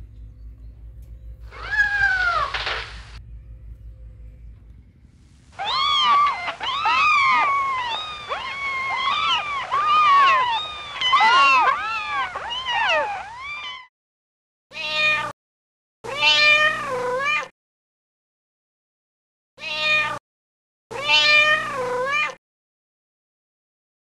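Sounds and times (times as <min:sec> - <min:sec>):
kittens mewing: 0:01.5 - 0:03.2, 0:05.6 - 0:13.9.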